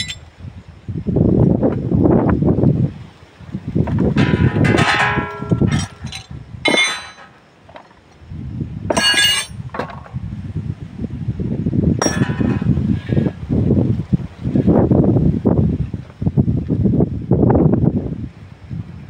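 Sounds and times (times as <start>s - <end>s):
metal tools clinking: 0.0s - 0.2s, 4.2s - 7.9s, 8.9s - 10.1s, 12.0s - 12.8s
low handling noise: 3.8s - 8.0s, 8.9s - 10.2s, 12.0s - 13.2s.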